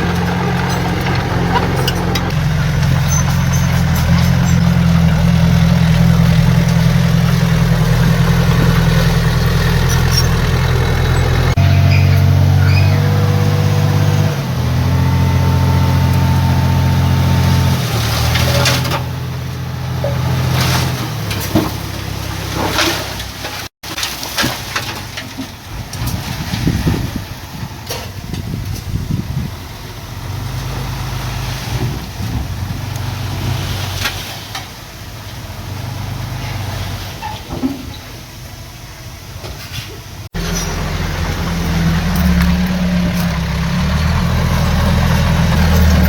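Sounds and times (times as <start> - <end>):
metal clanks: 0.0 - 4.9
diesel machinery engine: 0.0 - 46.0.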